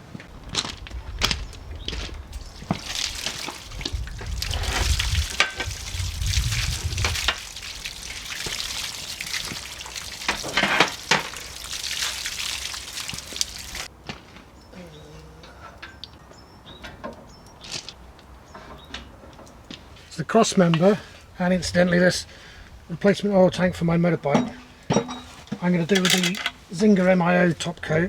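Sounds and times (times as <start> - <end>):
wet scrubbing and splashing: 1.8 - 13.9.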